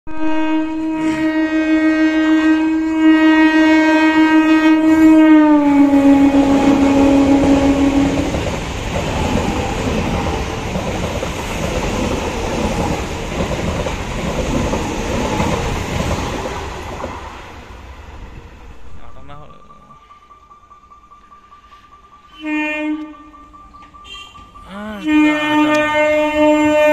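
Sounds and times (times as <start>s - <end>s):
train horn blast: 0.1s - 10.8s, 22.3s - 26.9s
train wheels rumbling on track: 1.0s - 26.9s.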